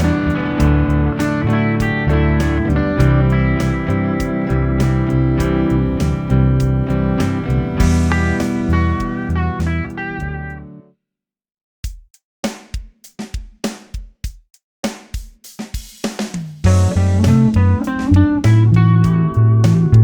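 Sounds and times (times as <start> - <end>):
drums playing a beat: 0.0 - 10.6, 11.8 - 20.0
bass guitar: 0.0 - 10.9, 16.6 - 20.0
electric guitar chords: 0.0 - 10.9, 16.7 - 20.0.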